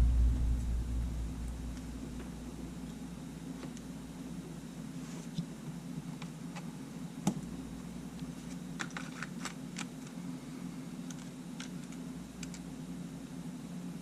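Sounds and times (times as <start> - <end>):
steady low hum: 0.0 - 4.9.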